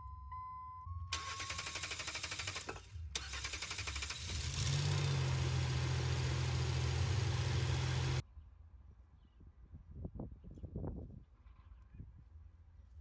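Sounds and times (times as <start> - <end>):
engine cranking on starter: 1.1 - 8.2
engine idling: 1.2 - 8.2.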